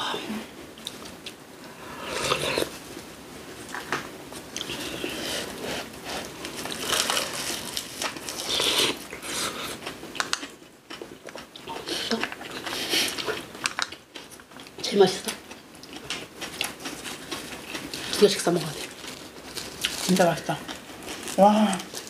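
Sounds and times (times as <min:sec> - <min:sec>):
biting and chewing food: 0:04.5 - 0:22.0.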